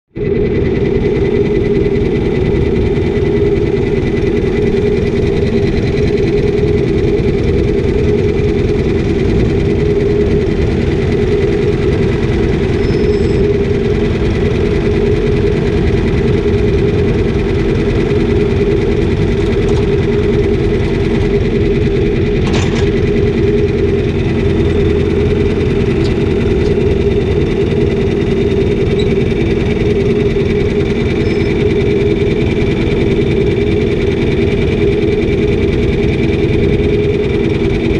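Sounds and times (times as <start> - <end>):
farm machine engine droning: 0.1 - 37.9.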